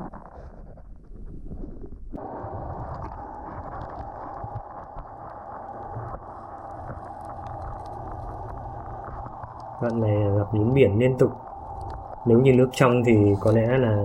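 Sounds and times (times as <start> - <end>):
muffled underwater rumble: 0.0 - 14.0
faint clicks: 2.9 - 10.0, 11.4 - 12.3.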